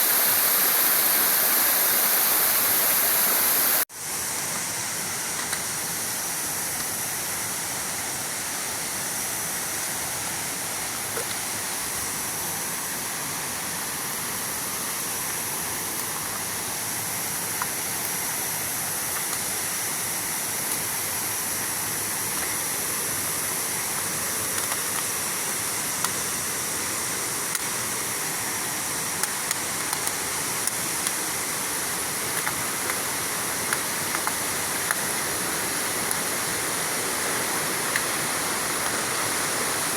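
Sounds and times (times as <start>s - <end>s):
waterfall rushing: 0.0s - 3.9s, 33.1s - 39.9s.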